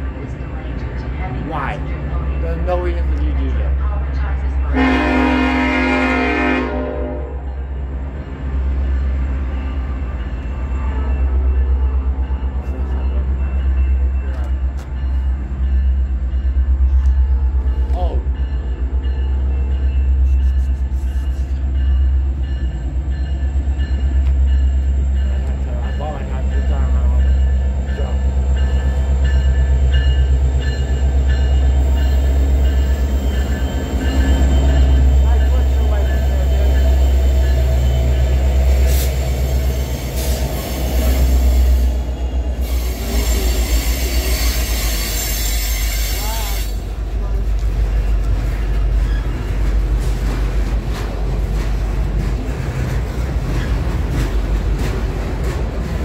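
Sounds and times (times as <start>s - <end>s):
locomotive bell ringing: 0.0s - 5.7s, 7.4s - 48.3s
diesel locomotive engine rumble: 0.0s - 56.0s
train horn: 4.6s - 7.7s.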